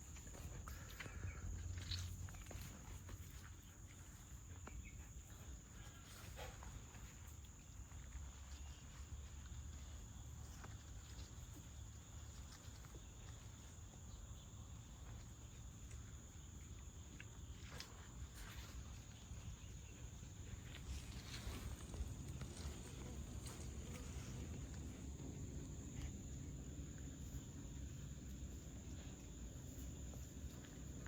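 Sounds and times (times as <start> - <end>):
insect drone: 0.0 - 31.0.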